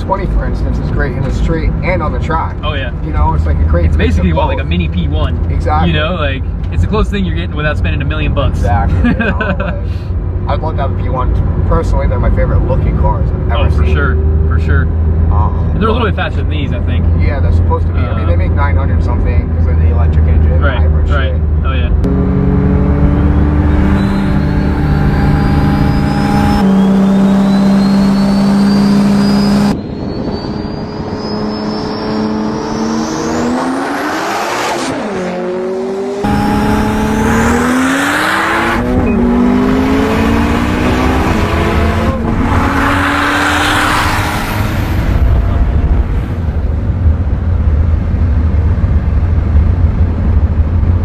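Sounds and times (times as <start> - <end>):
car engine accelerating hard: 0.0 - 51.0
high whine: 22.0 - 47.5.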